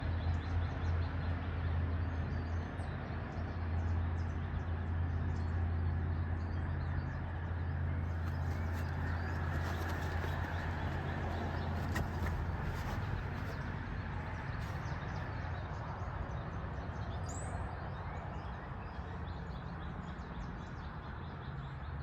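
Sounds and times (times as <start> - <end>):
small birds chirping: 6.5 - 22.0.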